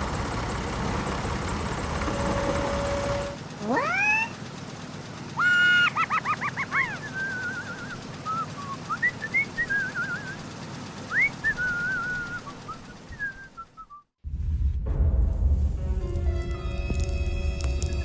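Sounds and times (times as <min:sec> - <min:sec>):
warbling whistle-like calls: 0:05.4 - 0:10.5, 0:11.1 - 0:13.9.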